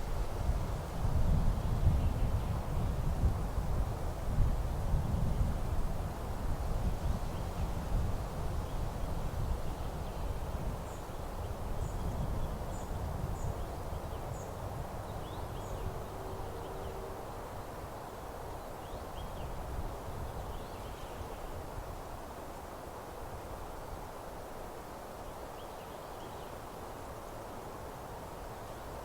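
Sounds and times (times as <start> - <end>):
wind buffeting microphone: 0.0 - 16.1.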